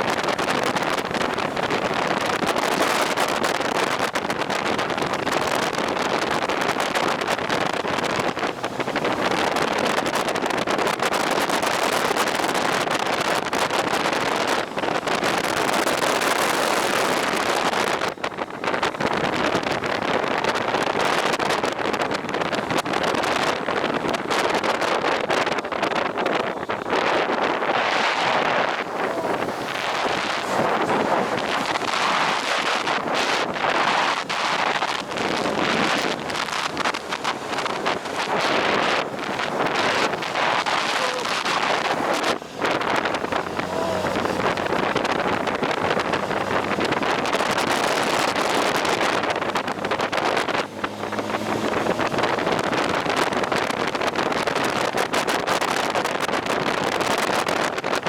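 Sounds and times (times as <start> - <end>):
wind rushing over microphone: 0.0 - 58.0
faint motorcycle engine: 21.7 - 54.0.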